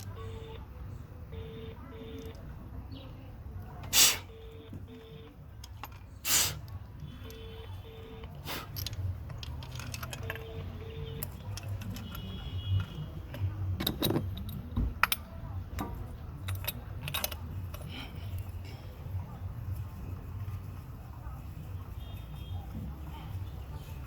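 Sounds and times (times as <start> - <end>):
metal jangling and clinking: 8.6 - 13.0, 16.4 - 18.6.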